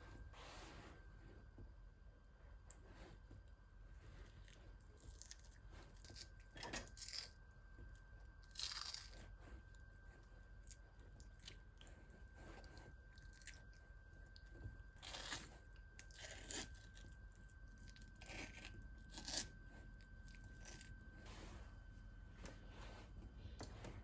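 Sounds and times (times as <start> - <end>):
faint steady high tone: 4.9 - 24.0
knife cutting raw meat: 18.2 - 19.6.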